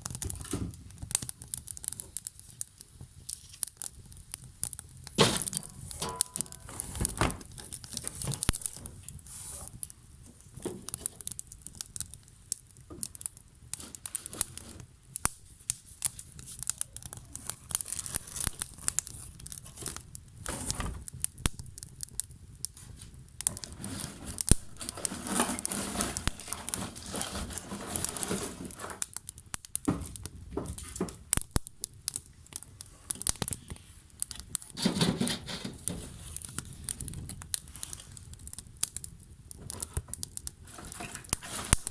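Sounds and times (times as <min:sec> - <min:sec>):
burning wood crackling: 0:00.0 - 0:41.9
fire hissing: 0:00.0 - 0:41.9.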